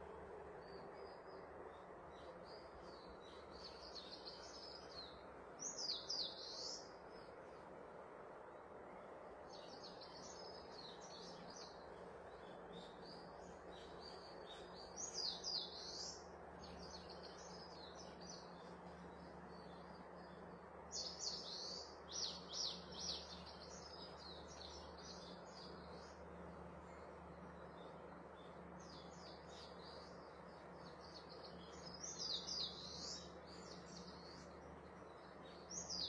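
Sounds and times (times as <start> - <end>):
steady background hiss: 0.0 - 36.0.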